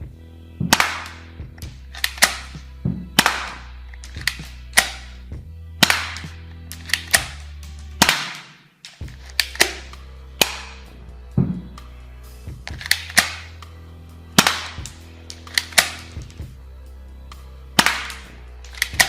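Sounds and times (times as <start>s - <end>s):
toy gun shots: 0.7s - 1.2s, 2.0s - 2.6s, 3.2s - 5.1s, 5.8s - 10.8s, 12.7s - 13.5s, 14.4s - 16.2s, 17.8s - 19.0s
steady low hum: 9.0s - 19.0s.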